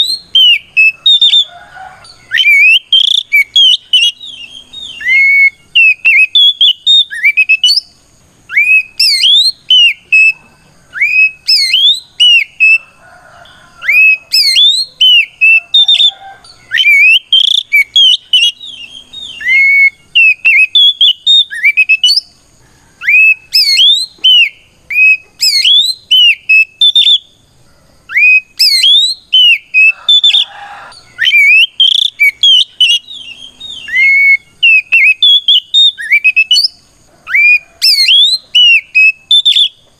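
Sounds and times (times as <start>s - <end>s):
bird whistling song: 0.0s - 22.4s, 23.0s - 27.4s, 28.1s - 39.9s.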